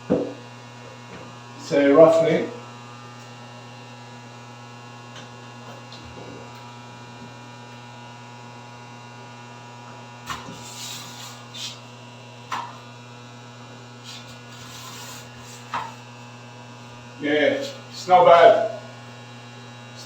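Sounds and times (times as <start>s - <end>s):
electrical hum: 0.0s - 20.0s
knock: 0.1s - 0.4s.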